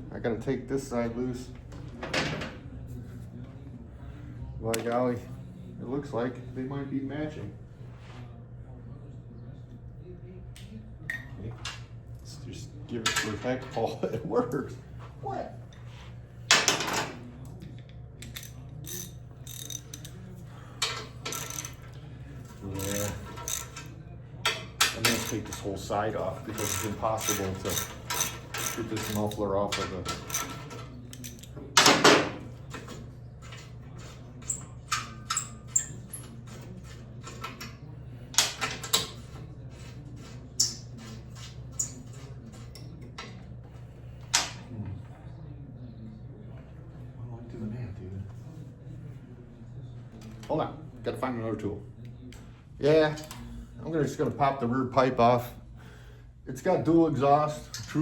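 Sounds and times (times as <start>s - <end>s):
ratchet clicks: 18.2s - 20.2s, 20.8s - 21.8s, 22.8s - 23.9s, 26.6s - 29.4s
metallic clatter of hand tools: 22.7s - 23.9s, 24.5s - 25.7s, 26.5s - 32.0s.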